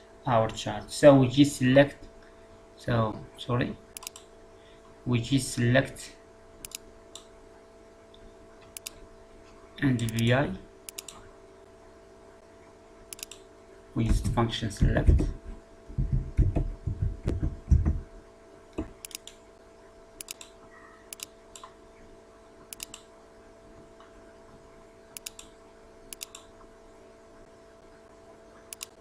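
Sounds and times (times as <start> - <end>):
faint electrical hum: 0.0 - 29.0
computer mouse clicks: 4.0 - 4.3, 6.6 - 7.3, 8.1 - 9.0, 10.0 - 10.3, 10.9 - 11.2, 13.1 - 13.5, 18.8 - 19.4, 20.2 - 21.8, 22.7 - 23.1, 25.2 - 26.5, 28.7 - 29.0.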